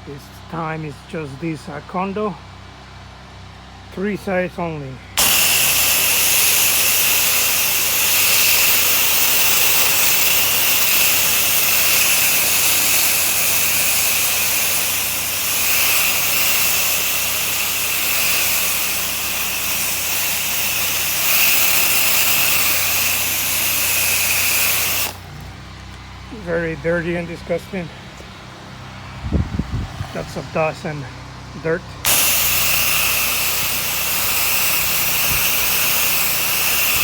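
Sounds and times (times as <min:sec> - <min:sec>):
pressure washer spray hissing: 0:05.2 - 0:25.5, 0:32.0 - 0:37.0
machine humming: 0:05.2 - 0:26.6, 0:32.0 - 0:37.0.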